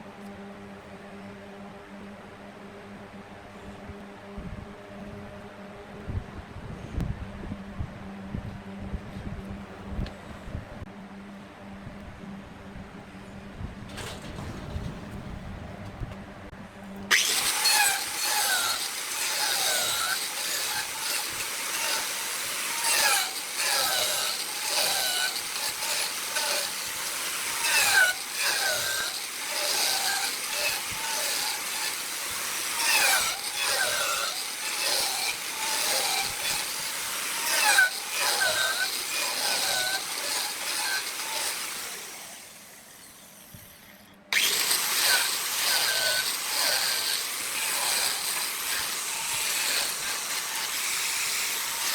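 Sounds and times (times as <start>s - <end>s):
turning tool squealing: 17.1s - 41.8s
wood lathe turning: 17.1s - 43.5s, 44.3s - 51.9s.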